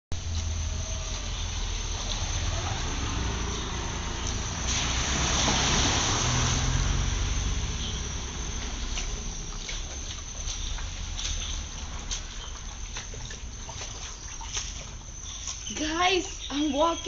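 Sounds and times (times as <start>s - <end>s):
floodwater rushing across road: 0.2s - 17.0s.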